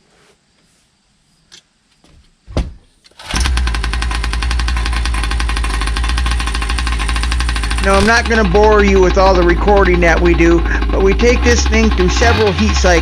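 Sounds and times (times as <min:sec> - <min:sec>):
small gas engine idling: 0:03.2 - 0:13.0.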